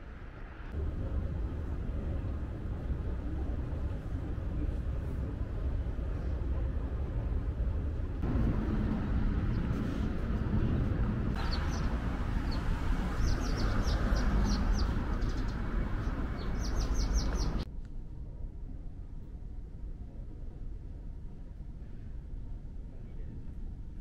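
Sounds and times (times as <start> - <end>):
low outdoor background noise: 0.0 - 24.0
small birds chirping: 11.4 - 17.7.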